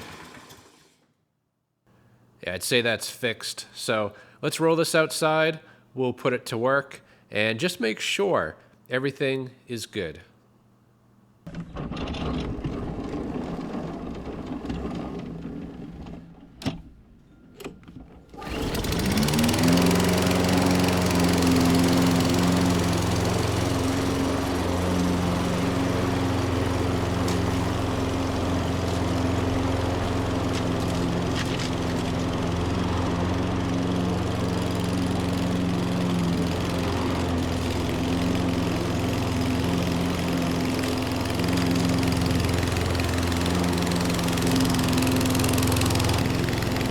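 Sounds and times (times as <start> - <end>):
lawn mower engine starting and running: 0.0 - 1.1, 11.5 - 46.9.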